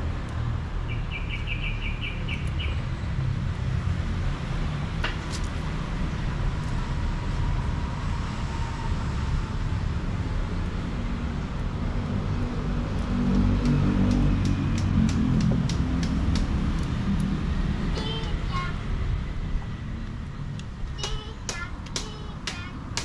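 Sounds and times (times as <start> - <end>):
bird chirping: 0.9 - 2.8
steady low rumble: 9.3 - 23.0.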